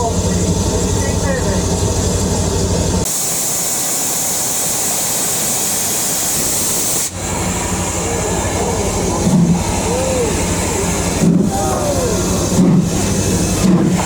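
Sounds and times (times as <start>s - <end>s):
low mechanical rumble: 0.0s - 14.0s
steam hissing loudly: 3.0s - 14.0s.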